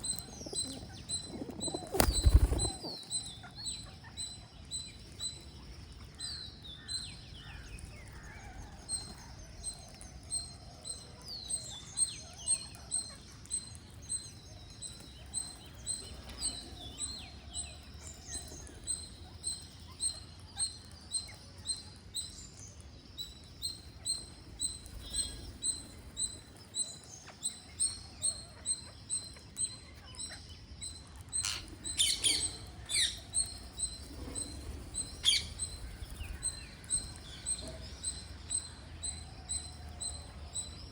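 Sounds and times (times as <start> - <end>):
birds chirping: 0.0 - 40.9
whistled bird calls: 31.4 - 40.7.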